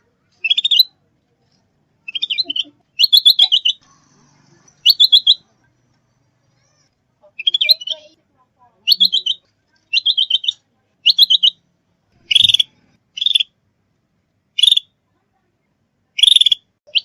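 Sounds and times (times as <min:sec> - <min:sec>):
bulbul singing high chirps: 0:00.4 - 0:00.9, 0:02.1 - 0:03.8, 0:04.8 - 0:05.5, 0:07.4 - 0:08.1, 0:08.9 - 0:11.6, 0:12.2 - 0:13.5, 0:14.6 - 0:14.9, 0:16.2 - 0:17.0.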